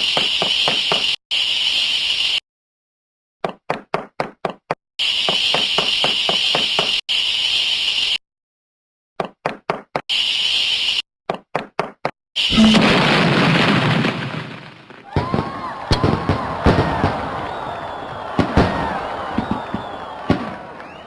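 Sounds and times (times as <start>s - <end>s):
quick sharp cartoon knocks: 12.5s - 13.2s
firework blast: 12.5s - 21.0s.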